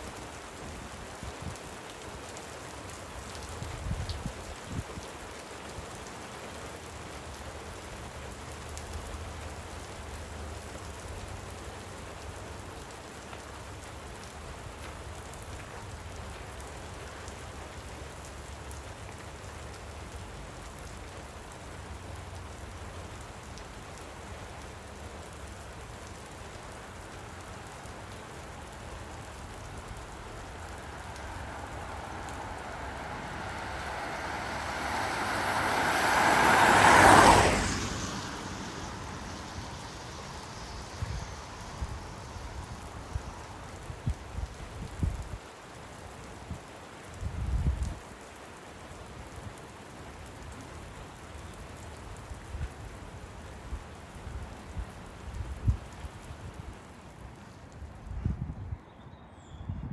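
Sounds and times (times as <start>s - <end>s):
light rain patter: 0.0s - 58.6s
passing road vehicle: 6.8s - 43.8s.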